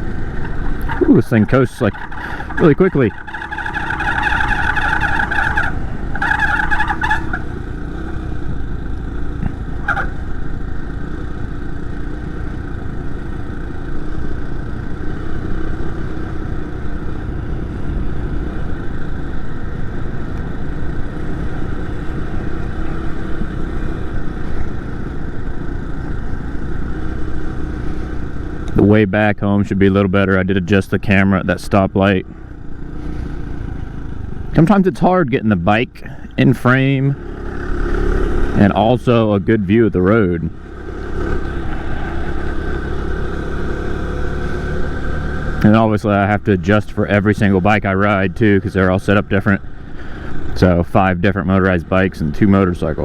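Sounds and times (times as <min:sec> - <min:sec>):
road and wind rumble: 0:00.0 - 0:53.0
high squeal: 0:00.2 - 0:07.6
motorized bicycle engine running: 0:01.8 - 0:28.6.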